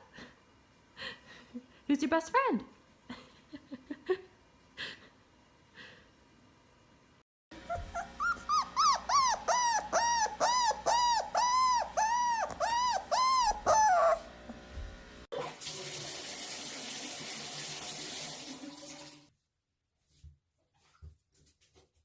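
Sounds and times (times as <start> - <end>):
dog whining yodel-like calls: 7.6 - 14.3.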